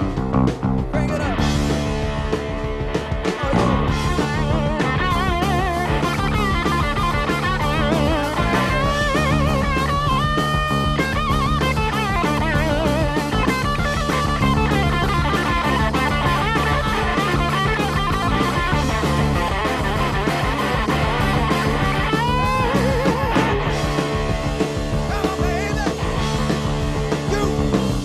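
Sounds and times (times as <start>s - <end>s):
steady drum beat: 0.0s - 28.0s
electric guitar solo: 1.2s - 27.9s.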